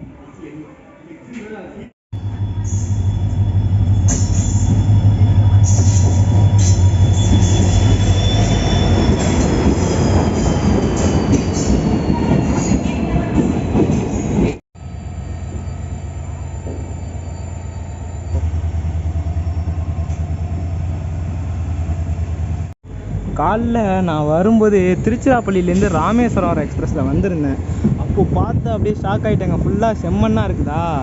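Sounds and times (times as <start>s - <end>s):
high-pitched wheel squeal: 2.2s - 13.0s, 14.8s - 18.6s
train rumbling on rails: 2.2s - 31.0s.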